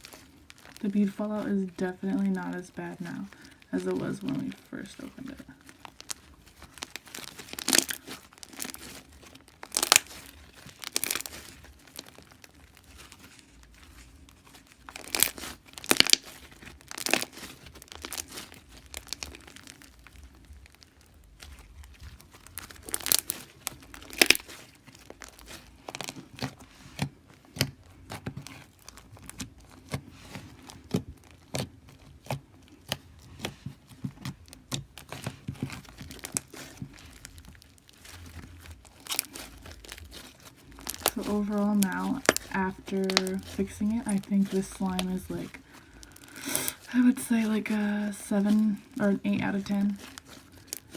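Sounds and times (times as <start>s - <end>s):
slime crackling pops and clicks: 9.6s - 11.3s.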